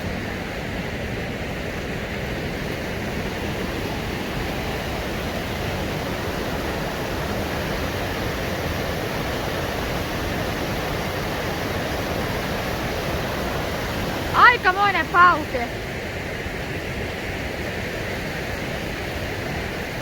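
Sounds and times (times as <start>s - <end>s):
river rapids roaring: 0.0s - 15.8s.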